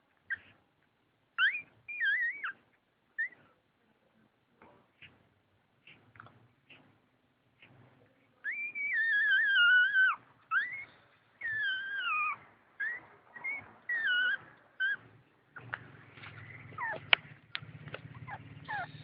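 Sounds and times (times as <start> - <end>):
puppy crying: 1.4 - 3.5, 8.4 - 15.7, 16.4 - 17.3, 18.0 - 19.0.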